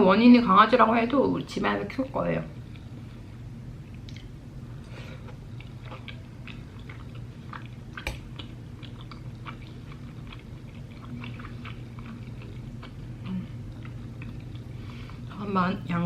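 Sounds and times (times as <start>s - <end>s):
chewing food: 3.8s - 15.4s.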